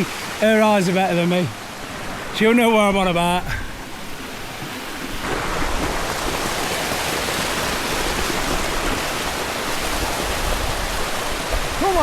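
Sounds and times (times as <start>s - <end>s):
waterfall pouring over rocks: 5.2s - 12.0s.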